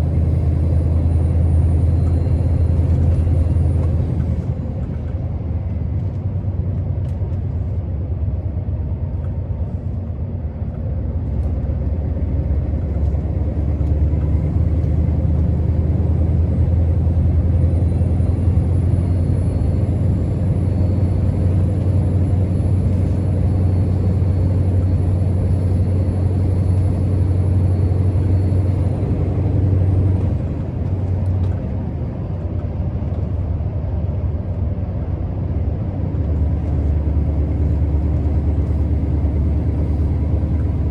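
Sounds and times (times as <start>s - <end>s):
diesel truck engine droning: 0.0s - 40.9s.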